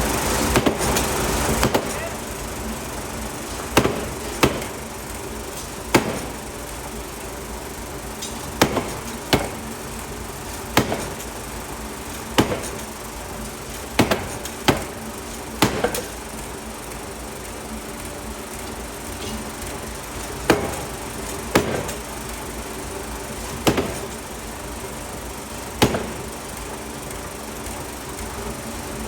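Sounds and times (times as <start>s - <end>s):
steady machine hum: 0.0s - 29.0s
hammer striking steel: 5.9s - 6.4s, 8.6s - 9.7s, 10.7s - 11.3s, 12.4s - 12.9s, 14.0s - 15.0s, 15.6s - 16.2s, 20.5s - 22.0s, 23.6s - 24.2s, 25.8s - 26.3s.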